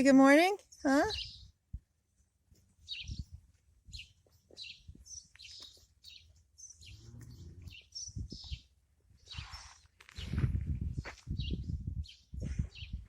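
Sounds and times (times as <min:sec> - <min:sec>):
birds chirping: 0:00.4 - 0:01.6, 0:02.5 - 0:10.4.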